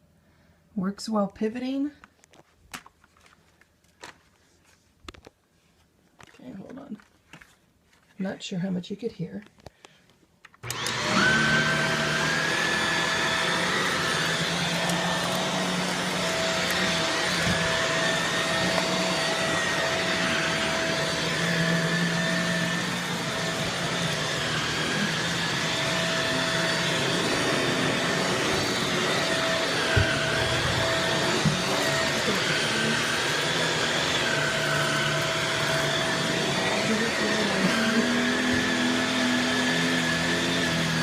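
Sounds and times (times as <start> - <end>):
vacuum cleaner motor whine: 10.6 - 41.0.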